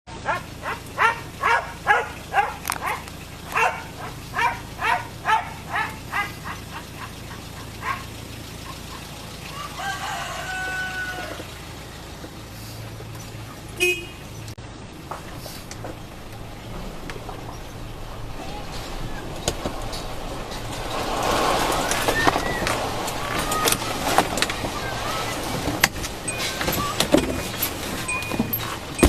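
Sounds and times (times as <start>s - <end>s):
chickens squawking: 0.2s - 11.6s.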